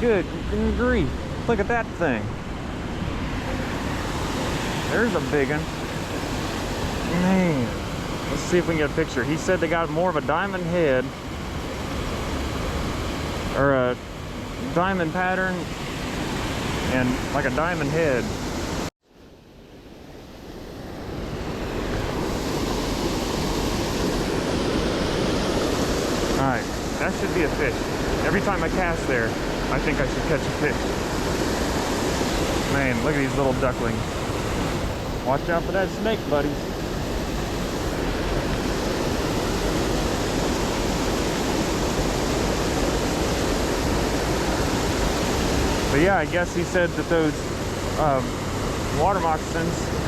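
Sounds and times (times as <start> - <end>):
waterfall rushing: 21.7 - 50.0.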